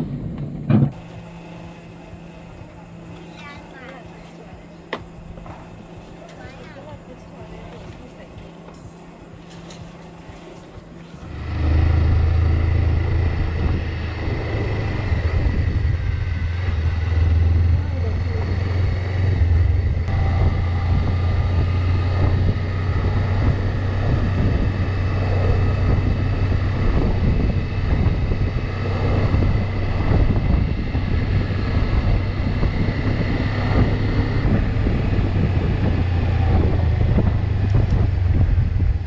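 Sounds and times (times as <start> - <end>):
vehicle drone: 0.0 - 39.0
wind on microphone: 11.2 - 39.0.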